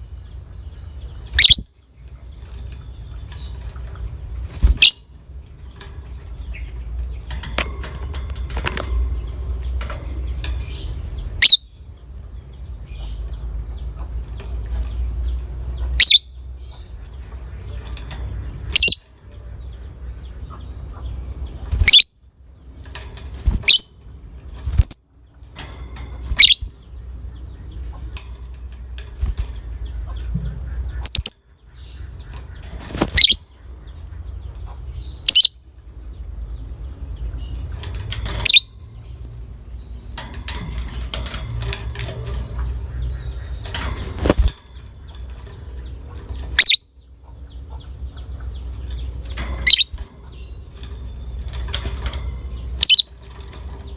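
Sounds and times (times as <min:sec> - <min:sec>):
steady high-pitched hiss: 0:00.0 - 0:53.9
lovebird shrill calls: 0:01.4 - 0:01.7, 0:04.6 - 0:05.1, 0:10.6 - 0:11.7, 0:16.0 - 0:16.3, 0:18.7 - 0:19.0, 0:21.2 - 0:22.1, 0:26.4 - 0:26.7, 0:33.1 - 0:33.5, 0:38.4 - 0:38.7, 0:46.5 - 0:46.9, 0:49.6 - 0:50.6, 0:52.7 - 0:53.1.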